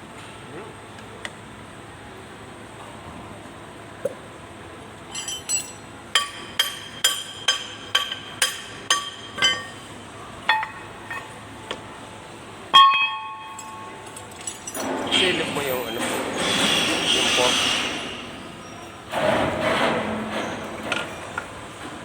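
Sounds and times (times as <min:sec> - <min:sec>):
loud metal clang ringing: 0:12.8 - 0:19.3.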